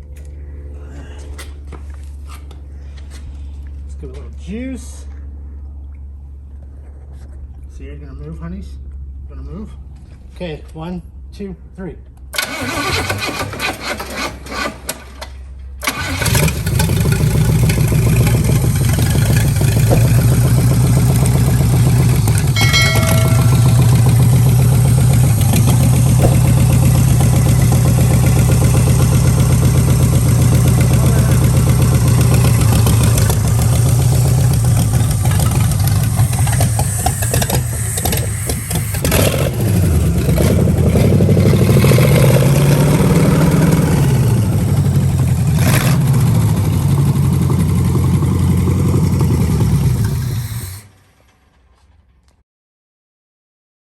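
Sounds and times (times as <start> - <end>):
engine cranking and running: 12.2 - 52.4.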